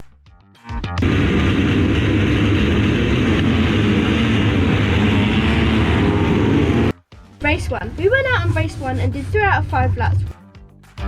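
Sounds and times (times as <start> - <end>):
motocross engines droning: 1.0 - 6.9.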